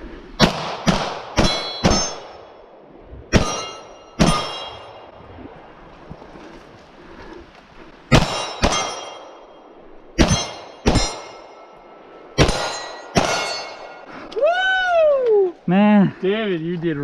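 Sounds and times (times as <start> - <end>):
gunshots: 0.4 - 2.5, 8.1 - 9.4, 10.2 - 11.4, 12.4 - 14.0
steel targets clanging: 1.4 - 2.5, 3.3 - 5.1, 8.1 - 14.1.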